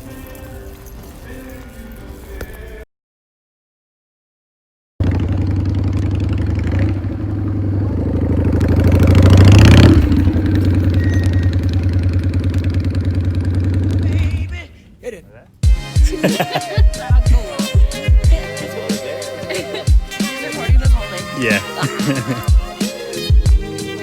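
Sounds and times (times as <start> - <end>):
engine idling and revving: 5.0 - 14.4.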